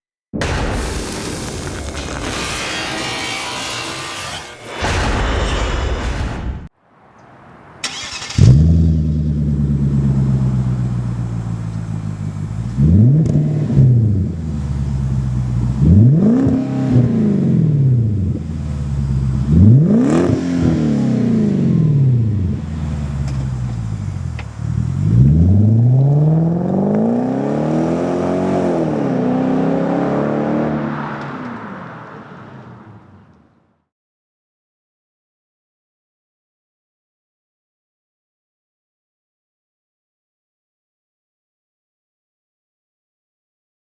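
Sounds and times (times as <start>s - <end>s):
loud noisy intro sound: 0.4s - 6.7s
car engine idling and revving: 7.2s - 33.6s.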